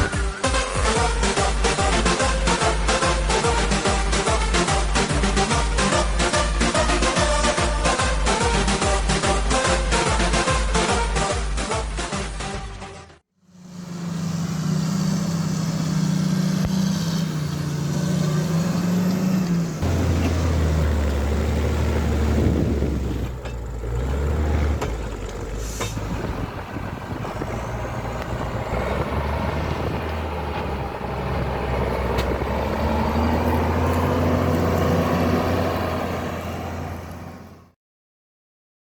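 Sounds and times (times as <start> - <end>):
diesel tractor engine under load: 0.0 - 10.9, 13.4 - 37.8.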